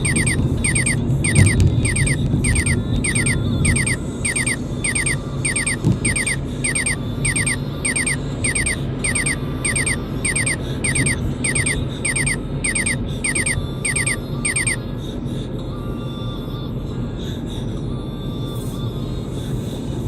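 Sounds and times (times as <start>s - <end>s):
radar detector chirping beeps: 0.0s - 14.8s
car cabin road noise: 0.0s - 20.0s.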